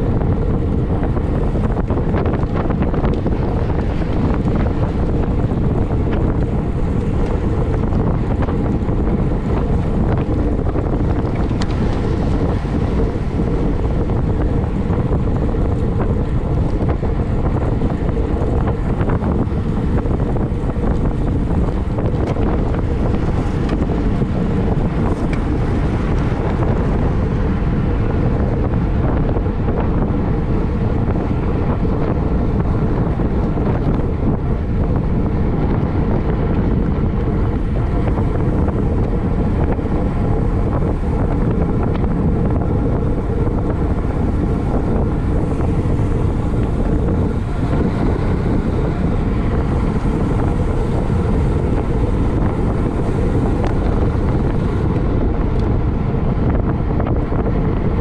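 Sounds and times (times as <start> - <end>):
low rumble: 0.0 - 58.0
wind buffeting microphone: 0.0 - 58.0.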